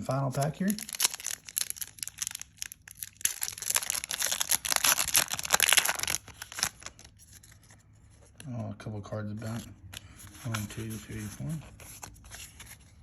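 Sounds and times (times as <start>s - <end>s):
foil wrapper crinkling: 0.5s - 7.6s.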